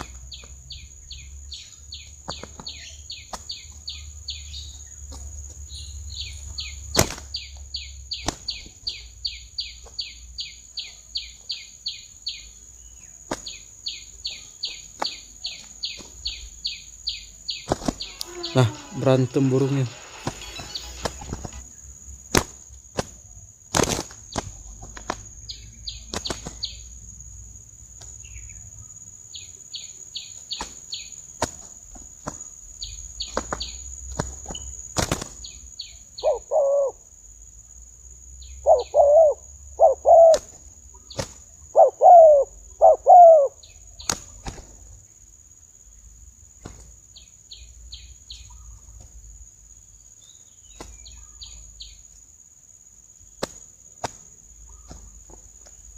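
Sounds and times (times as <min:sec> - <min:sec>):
high insect buzz: 0:00.0 - 0:55.9
high chirps: 0:13.5 - 0:21.9
doves cooing: 0:17.6 - 0:19.1, 0:36.2 - 0:37.0, 0:38.6 - 0:43.6
wing flaps: 0:17.6 - 0:21.7, 0:22.3 - 0:25.4, 0:33.2 - 0:35.5.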